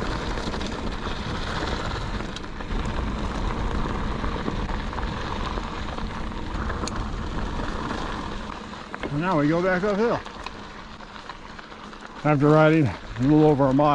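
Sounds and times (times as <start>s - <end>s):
wind rumbling on microphone: 0.0s - 12.2s
bike tyres crunching over gravel: 0.0s - 13.9s.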